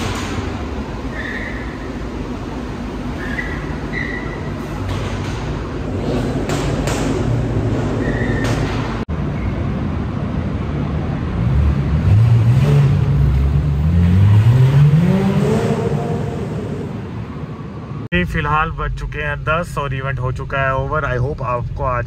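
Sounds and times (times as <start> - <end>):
road noise: 0.0 - 22.0
car engine accelerating: 11.1 - 17.4.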